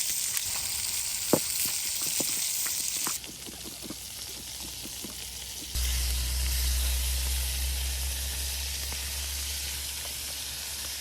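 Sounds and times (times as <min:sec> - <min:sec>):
chicken sizzling in a pan: 0:00.0 - 0:11.0
low rumble: 0:05.8 - 0:11.0.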